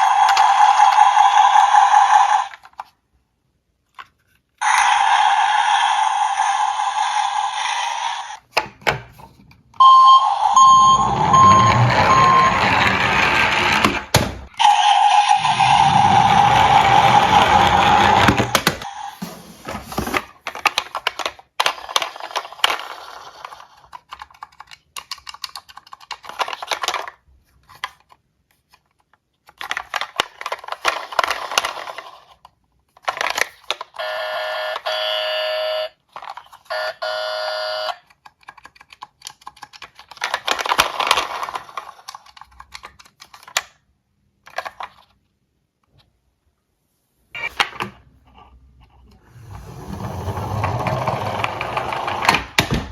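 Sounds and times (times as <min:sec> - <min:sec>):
toy cars clicking and clattering: 0:00.0 - 0:03.0, 0:20.3 - 0:34.0, 0:36.1 - 0:36.7, 0:37.9 - 0:45.3.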